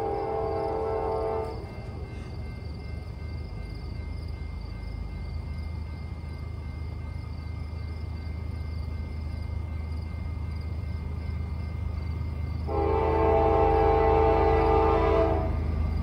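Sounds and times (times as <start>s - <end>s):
crickets chirping: 0.0s - 16.0s
diesel freight train rumble: 0.0s - 16.0s.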